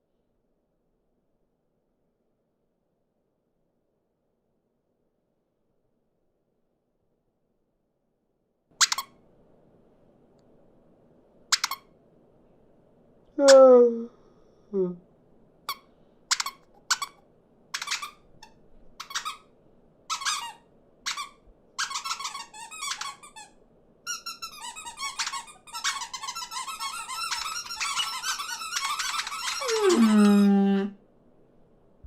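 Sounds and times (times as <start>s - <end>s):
cartoon birds chirping: 29.6s - 30.7s.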